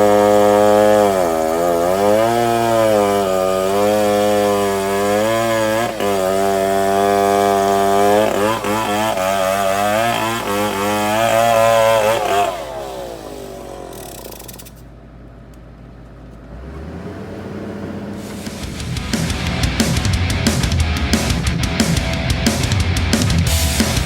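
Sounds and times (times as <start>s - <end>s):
engine running hard: 16.4s - 24.0s.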